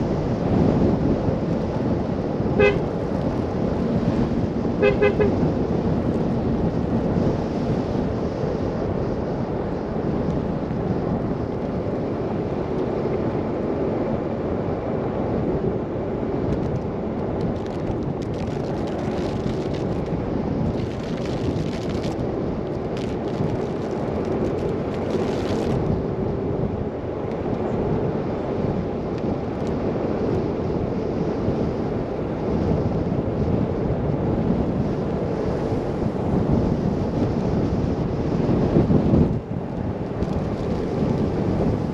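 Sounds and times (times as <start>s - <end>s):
wind and road noise: 0.0s - 41.9s
faint crackles: 16.5s - 25.9s.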